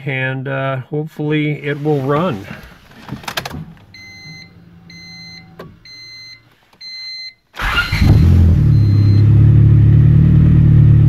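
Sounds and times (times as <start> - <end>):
car engine starting and idling: 1.6 - 11.0
dashboard warning chimes: 3.5 - 9.4.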